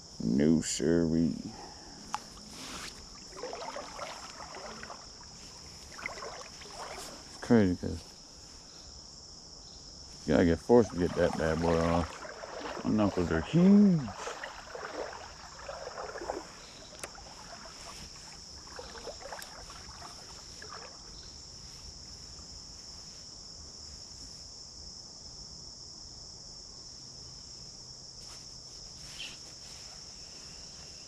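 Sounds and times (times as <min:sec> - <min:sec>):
crickets chirping: 0:00.0 - 0:31.0
water sloshing and splashing: 0:01.6 - 0:08.3, 0:10.2 - 0:22.6.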